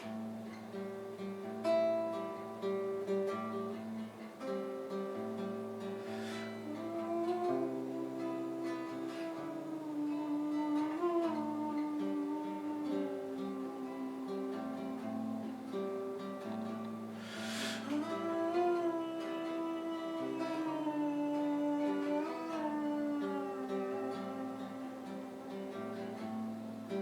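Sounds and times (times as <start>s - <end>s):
band music with acoustic guitar: 0.0s - 27.0s
bright hiss: 3.7s - 18.2s.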